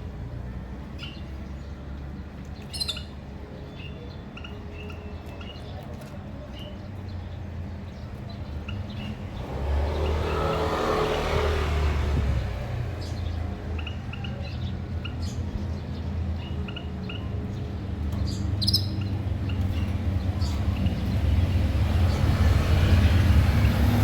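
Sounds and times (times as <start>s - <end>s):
cage birds chirping: 0.0s - 24.0s
vehicle passing by: 7.6s - 24.0s.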